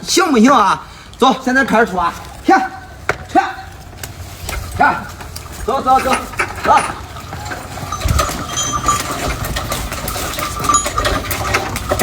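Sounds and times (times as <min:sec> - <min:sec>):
harness and cart clinking: 0:00.0 - 0:12.0
steady ringing tone: 0:06.0 - 0:11.8.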